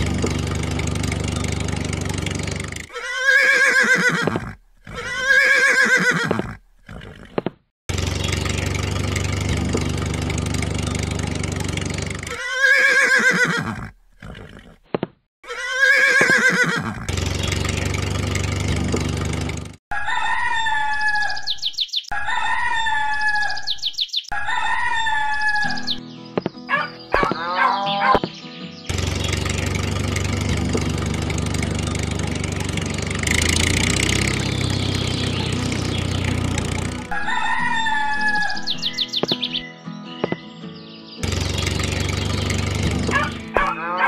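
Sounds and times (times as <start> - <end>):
steady engine rumble: 0.0 - 2.9, 7.9 - 12.4, 16.9 - 19.8, 28.9 - 37.2, 41.2 - 43.7
horse whinnying: 2.9 - 7.4, 12.2 - 14.8, 15.4 - 17.1, 26.7 - 28.2, 37.1 - 38.7, 43.1 - 44.0
rooster crowing: 19.9 - 21.3, 22.1 - 23.4, 24.3 - 25.6, 37.1 - 38.6
chickens calling: 19.9 - 26.0, 26.7 - 28.7, 34.3 - 39.6, 42.4 - 44.0.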